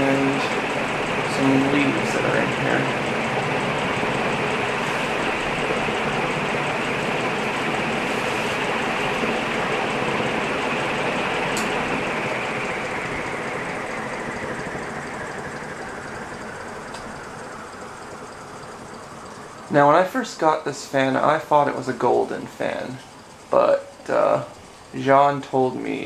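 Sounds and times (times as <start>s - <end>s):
ceiling fan rushing air: 0.0s - 26.0s
sharp click: 11.6s - 11.8s.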